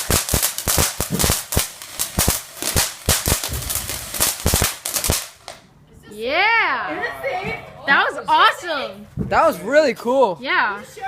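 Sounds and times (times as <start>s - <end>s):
fireworks crackling: 0.0s - 5.7s.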